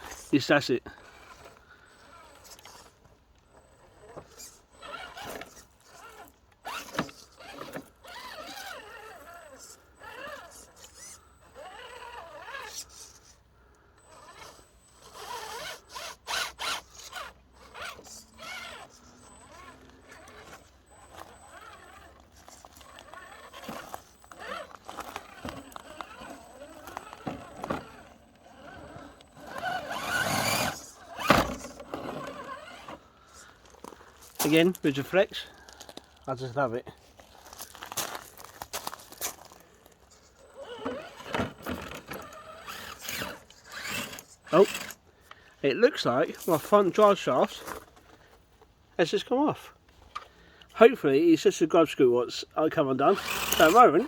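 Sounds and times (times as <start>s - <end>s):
electric motor whining: 1.0s - 33.8s, 40.3s - 45.0s, 53.0s - 54.0s.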